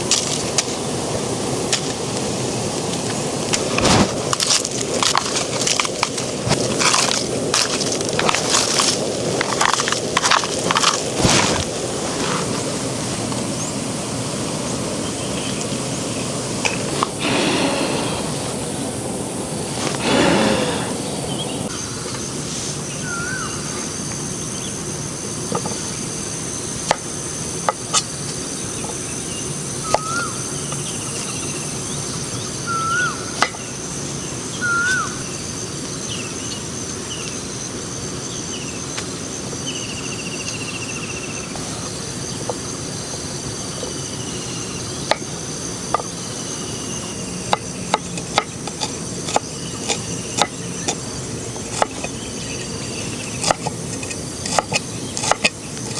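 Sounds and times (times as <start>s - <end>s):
insects chirring: 0.0s - 55.9s
bird whistled calls: 22.9s - 23.8s, 29.8s - 30.5s, 32.6s - 33.7s, 34.5s - 35.3s.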